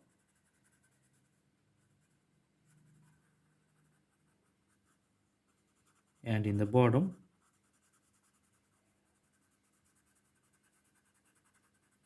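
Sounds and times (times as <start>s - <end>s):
drawing tool scratching paper: 0.1s - 6.2s, 7.4s - 12.0s.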